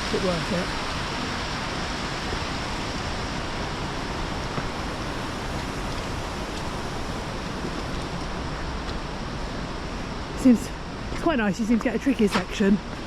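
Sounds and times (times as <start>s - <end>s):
mountain stream rushing over rocks: 0.0s - 13.0s.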